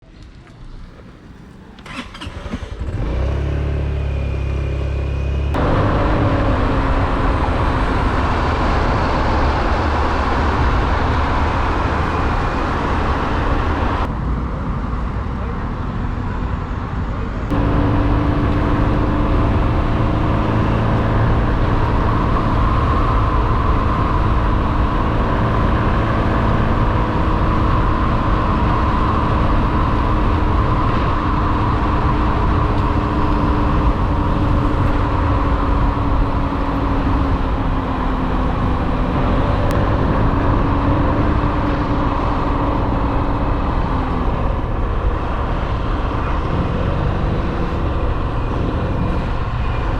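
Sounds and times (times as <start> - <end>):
wind and road noise: 0.0 - 49.9
motorbike engine cruising: 0.4 - 14.1, 15.4 - 49.9.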